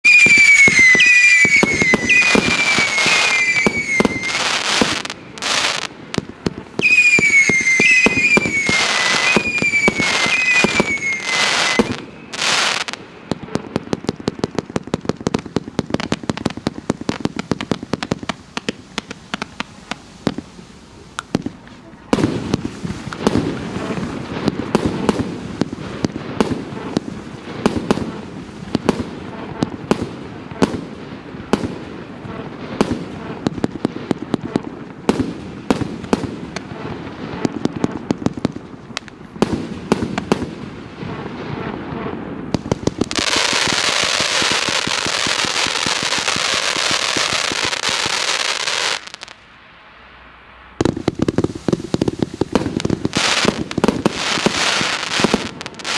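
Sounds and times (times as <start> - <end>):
fireworks firing sharp shots: 0.0 - 49.4, 50.7 - 55.9
fireworks hissing: 0.0 - 55.9.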